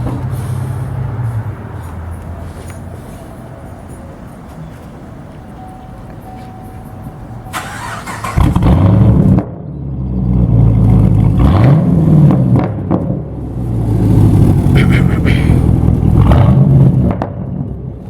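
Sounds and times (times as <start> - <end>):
car engine starting and revving: 7.5 - 17.4.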